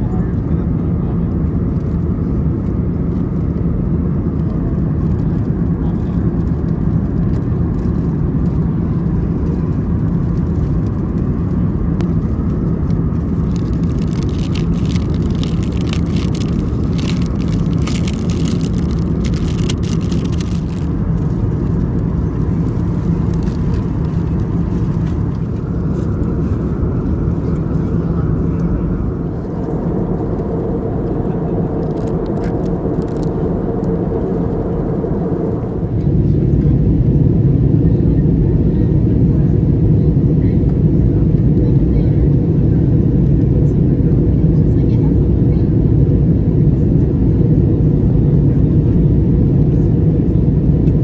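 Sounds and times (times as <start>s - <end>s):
airplane cabin roar: 0.0s - 51.0s
crackling clicks: 12.8s - 22.1s, 22.7s - 25.6s, 29.2s - 36.0s.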